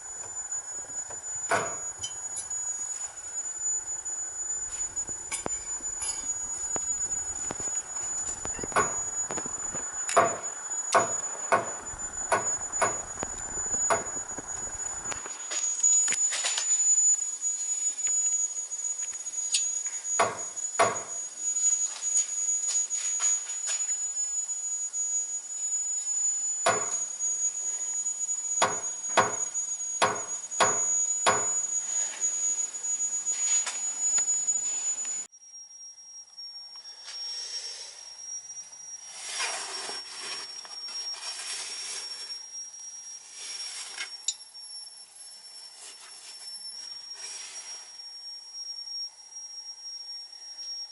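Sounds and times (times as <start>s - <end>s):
steady high whine: 0.0s - 50.9s
sharp knocks: 11.0s - 13.0s.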